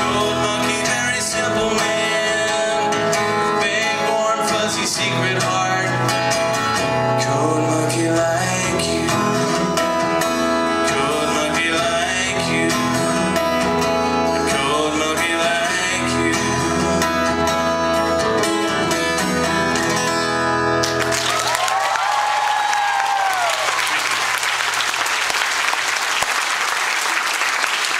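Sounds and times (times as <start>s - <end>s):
live rock band playing: 0.0s - 21.6s
crowd cheering and applause: 20.8s - 27.9s.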